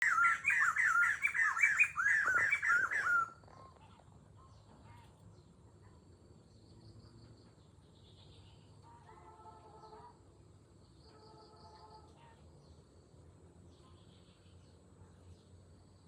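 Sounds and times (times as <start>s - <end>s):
bird calling loudly: 0.0s - 3.4s
distant chirps: 0.0s - 3.4s
insects: 0.0s - 16.0s.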